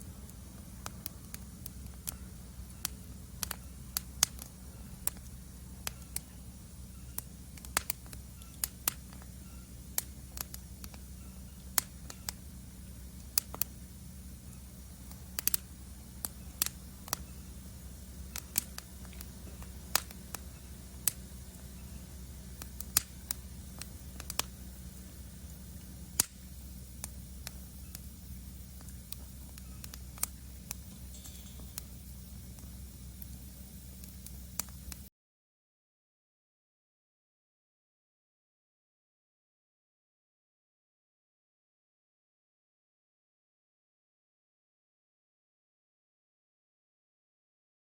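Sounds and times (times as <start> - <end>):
wood fire crackling: 0.0 - 35.1.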